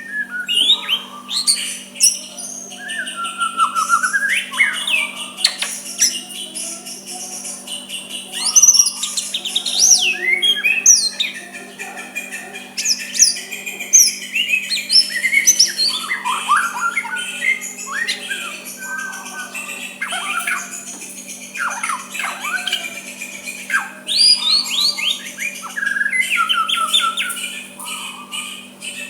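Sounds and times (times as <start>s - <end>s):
bird singing whistled song: 0.0s - 29.0s.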